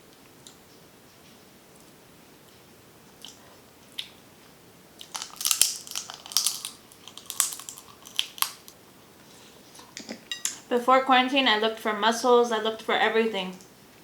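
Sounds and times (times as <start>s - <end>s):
crab shell cracking: 5.0s - 8.8s.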